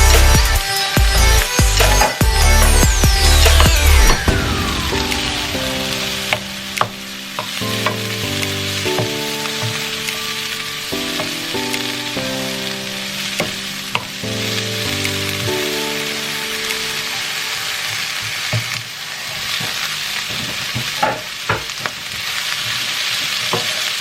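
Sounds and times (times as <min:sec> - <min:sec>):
soft background music: 0:00.0 - 0:18.9
food sizzling in a pan: 0:04.1 - 0:24.0.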